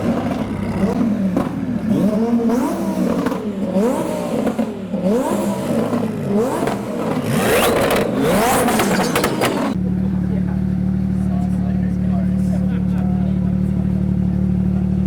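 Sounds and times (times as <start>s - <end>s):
car engine revving: 0.0s - 15.0s
exhaust pops and crackles: 5.8s - 9.8s.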